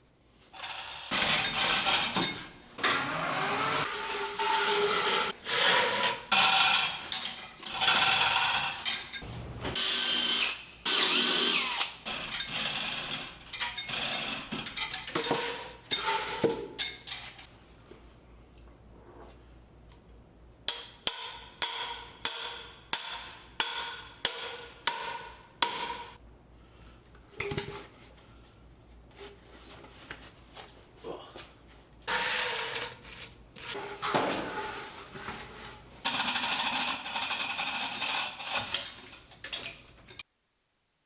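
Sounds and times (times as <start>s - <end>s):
noisy tool work: 0.5s - 17.4s, 32.1s - 39.8s
hammer striking metal: 20.7s - 26.2s.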